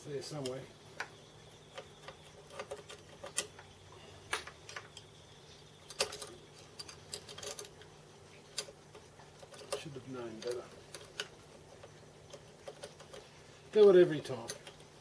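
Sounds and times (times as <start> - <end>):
hand tools clicking and knocking: 8.5 - 13.3.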